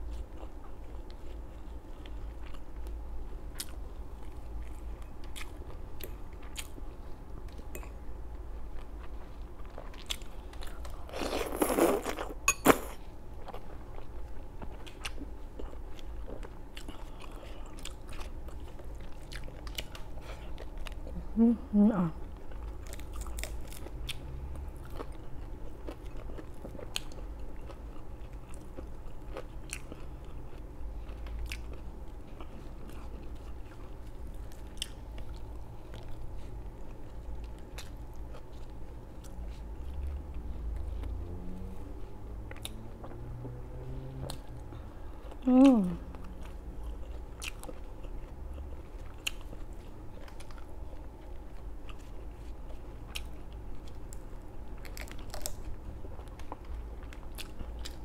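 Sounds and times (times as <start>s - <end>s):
steady low hum: 0.0s - 58.0s
person crunching crispy food: 9.9s - 12.9s, 54.8s - 56.5s
person humming: 21.2s - 22.2s, 45.4s - 46.2s.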